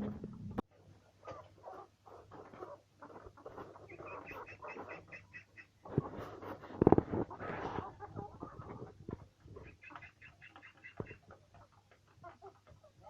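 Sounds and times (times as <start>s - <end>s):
poultry clucking: 0.0s - 13.0s
poultry peeping: 0.0s - 13.0s.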